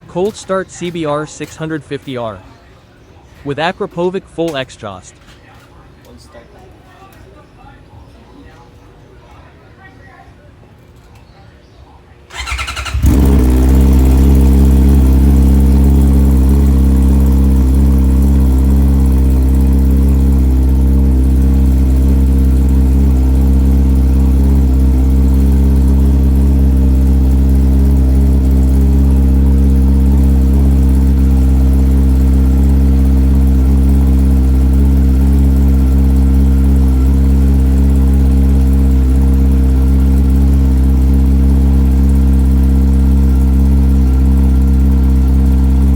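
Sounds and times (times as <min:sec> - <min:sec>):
motorcycle engine idling: 0:00.0 - 0:02.7, 0:12.3 - 0:45.9.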